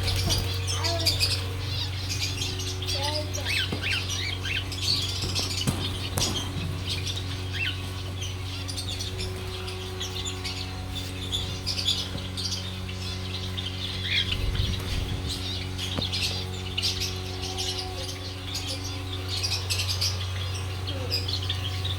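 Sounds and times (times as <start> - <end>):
small birds chirping and squawking: 0.0 - 21.9
steady low hum: 0.0 - 21.9.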